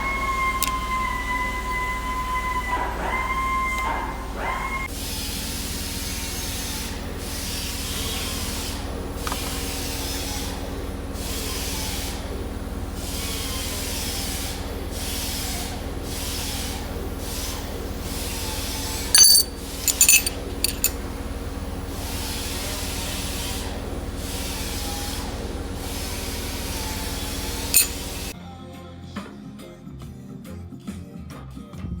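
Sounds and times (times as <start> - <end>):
workshop tool humming: 0.0 - 28.4
sharp metallic clinks: 19.2 - 21.0, 27.8 - 28.1.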